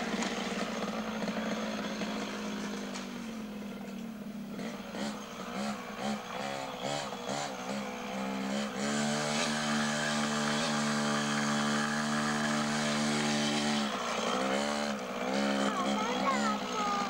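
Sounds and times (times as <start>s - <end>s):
motorcycle engine buzzing: 0.0s - 17.0s.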